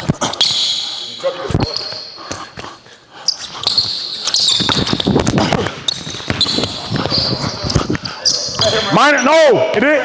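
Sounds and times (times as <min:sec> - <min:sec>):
sneakers squeaking on floor: 0:00.0 - 0:09.9
basketball bouncing on hardwood: 0:04.6 - 0:08.9.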